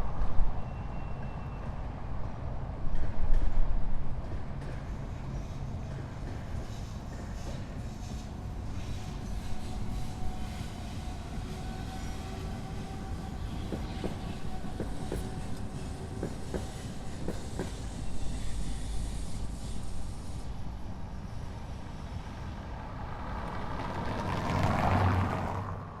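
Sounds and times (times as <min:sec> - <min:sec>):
vehicle rumbling: 0:22.2 - 0:26.0.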